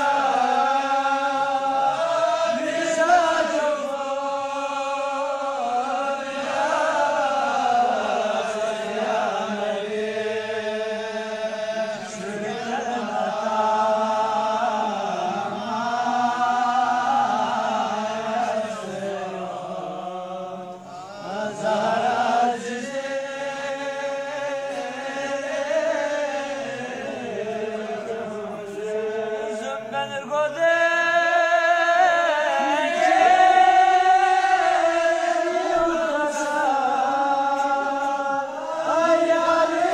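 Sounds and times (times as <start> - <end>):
person chanting devotional poetry: 0.0 - 39.9.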